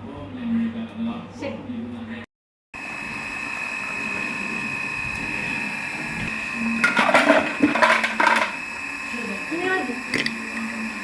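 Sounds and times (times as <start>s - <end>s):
electric motor whining: 2.8s - 11.0s.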